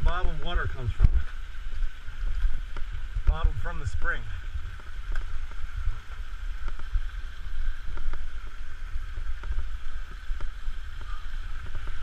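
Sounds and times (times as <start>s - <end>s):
small waterfall splashing: 0.0s - 12.0s
wind buffeting microphone: 0.0s - 12.0s.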